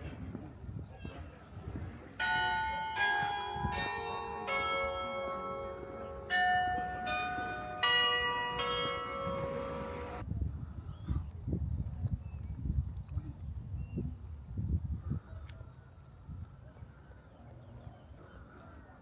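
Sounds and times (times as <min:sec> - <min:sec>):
church bells ringing: 0:02.2 - 0:10.2.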